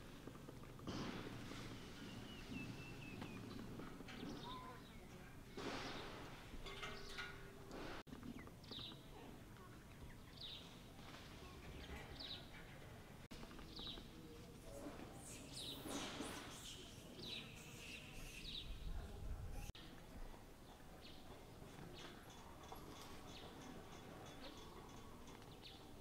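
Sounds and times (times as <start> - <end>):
small birds chirping: 1.7 - 19.8.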